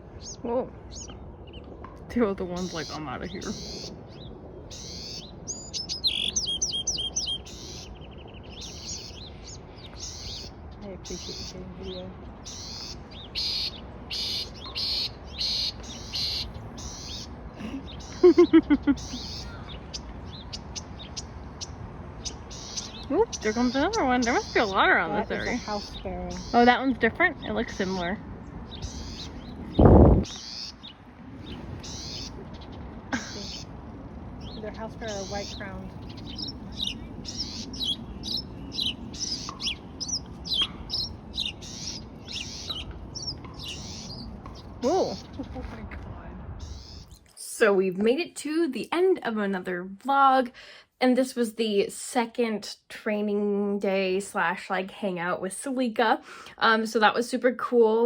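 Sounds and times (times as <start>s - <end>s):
small birds buzzy chirps: 0.0s - 47.4s
loud lower bird notes: 4.7s - 33.7s, 34.4s - 45.6s.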